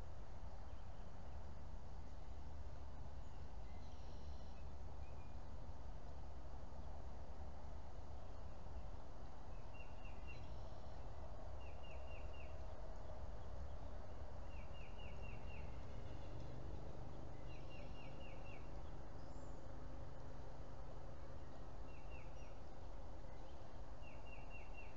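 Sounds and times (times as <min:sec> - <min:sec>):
low background rumble: 0:00.0 - 0:24.9
bird chirping: 0:03.2 - 0:05.6, 0:08.2 - 0:20.4, 0:21.1 - 0:24.9.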